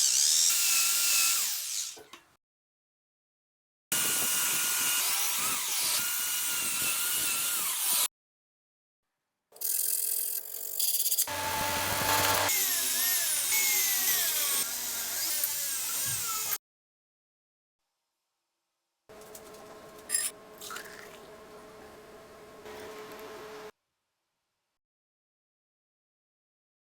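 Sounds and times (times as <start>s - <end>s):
power tool whining on metal: 11.2s - 16.6s.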